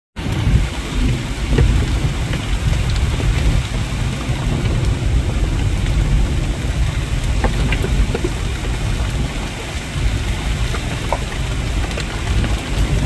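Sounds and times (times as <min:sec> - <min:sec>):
low rumble: 0:00.2 - 0:13.0
rain falling: 0:00.2 - 0:13.0
drops ticking: 0:05.7 - 0:13.0.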